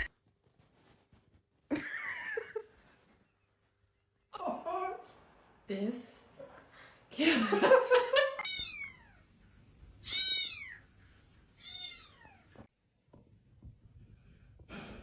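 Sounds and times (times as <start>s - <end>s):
cat meowing: 8.4s - 9.2s, 10.0s - 10.9s, 11.6s - 12.6s.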